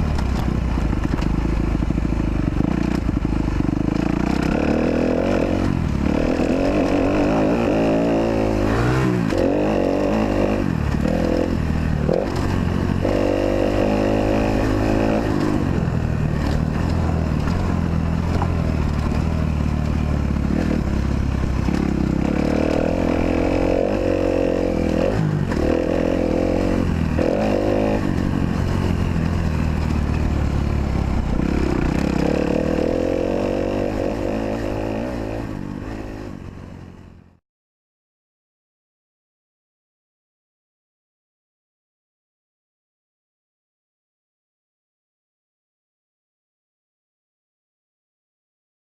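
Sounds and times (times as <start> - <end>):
motocross engine revving: 1.0 - 36.5.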